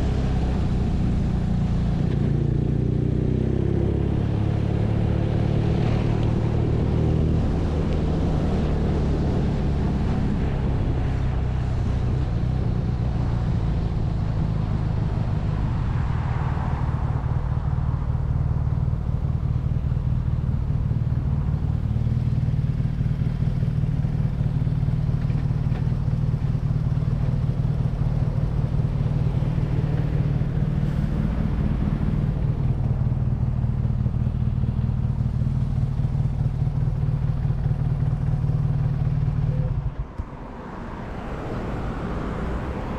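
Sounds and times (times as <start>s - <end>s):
motorcycle engine running: 18.9s - 30.8s, 31.5s - 40.2s.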